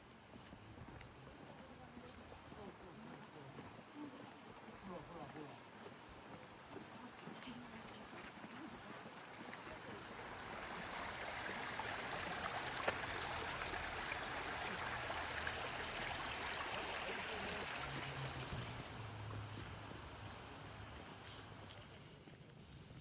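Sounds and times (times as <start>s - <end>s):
water rushing: 8.7s - 21.9s.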